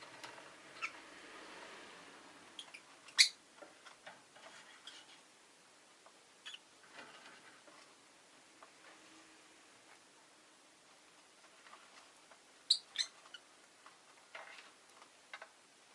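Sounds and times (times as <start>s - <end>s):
lovebird chirps and clicks: 12.7s - 13.2s.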